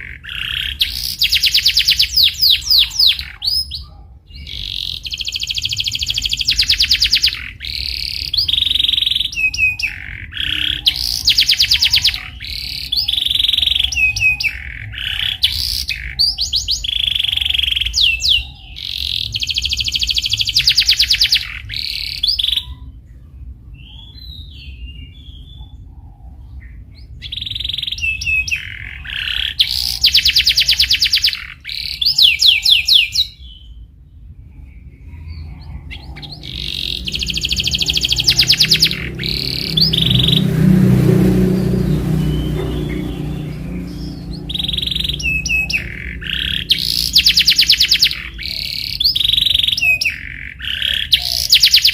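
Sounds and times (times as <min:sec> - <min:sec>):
canary singing: 0:00.0 - 0:51.9.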